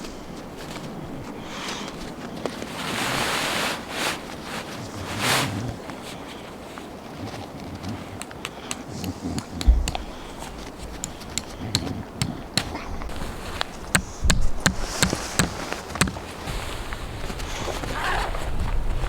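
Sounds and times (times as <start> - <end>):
clicks and knocks of hard objects: 7.7 - 16.2
heavy thumps: 8.7 - 16.6.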